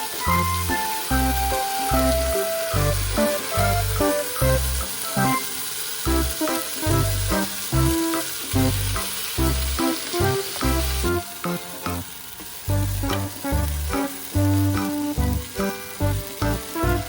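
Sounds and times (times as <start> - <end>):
background music with a beat: 0.0 - 5.5, 6.1 - 12.0
food sizzling in a pan: 0.0 - 17.0.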